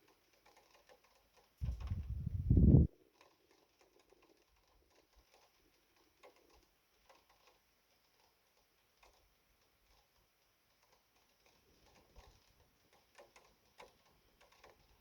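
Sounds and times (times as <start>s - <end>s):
rain drips tapping: 0.0s - 15.0s
loud low rumble: 1.6s - 2.9s.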